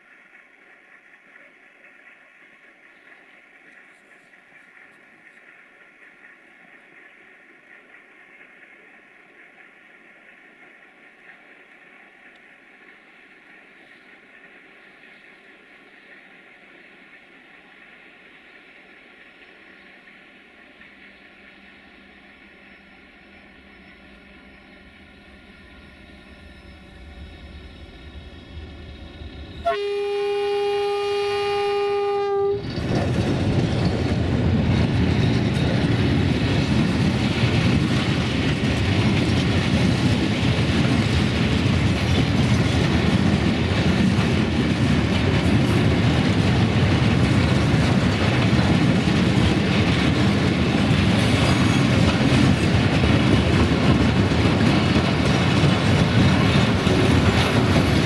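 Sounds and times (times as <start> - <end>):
locomotive horn: 29.6 - 32.7
freight wagons rolling on rails: 32.5 - 58.0.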